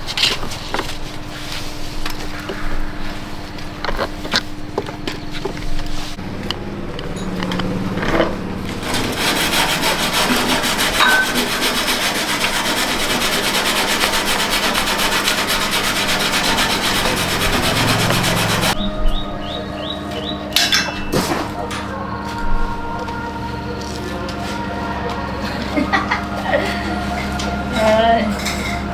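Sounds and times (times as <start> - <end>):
rapid abrasive scrubbing: 7.6 - 20.5.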